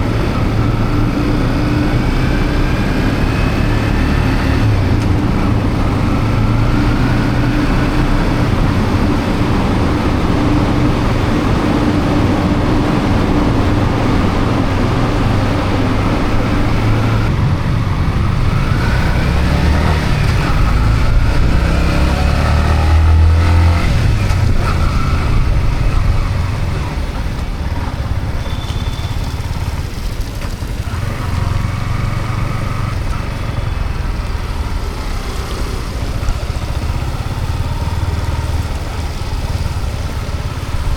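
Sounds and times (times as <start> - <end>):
motorcycle engine accelerating: 0.0 - 40.9
road and wind noise: 0.0 - 40.9.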